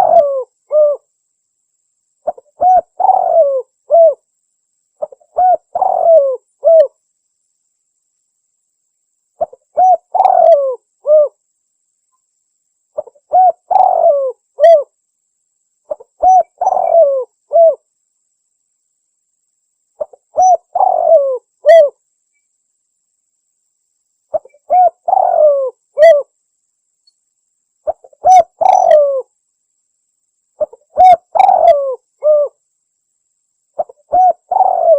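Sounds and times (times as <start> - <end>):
dove cooing: 0.0 - 1.1, 2.2 - 4.2, 5.0 - 7.0, 9.4 - 11.4, 13.0 - 14.9, 15.9 - 17.8, 20.0 - 22.0, 24.3 - 26.3, 27.9 - 29.3, 30.6 - 32.6, 33.8 - 34.9.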